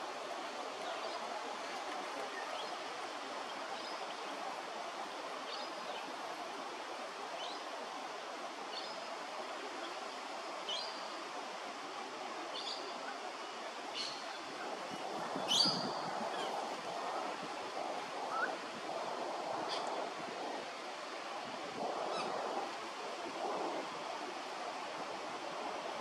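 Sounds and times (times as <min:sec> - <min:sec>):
steady rushing noise: 0:14.5 - 0:26.0.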